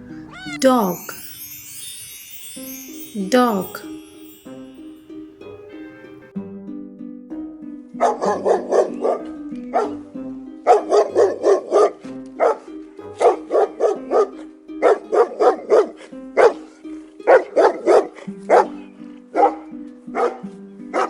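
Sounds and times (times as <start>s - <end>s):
dog barking: 8.0s - 9.2s, 9.8s - 10.0s, 10.7s - 12.6s, 13.5s - 16.6s, 17.3s - 21.0s.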